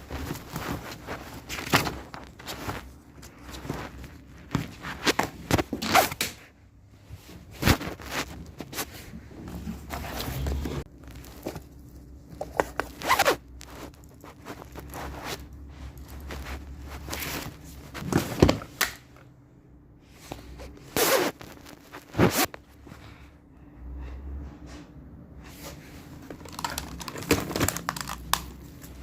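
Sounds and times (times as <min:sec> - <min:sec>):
packaging being torn open: 0:26.4 - 0:28.6.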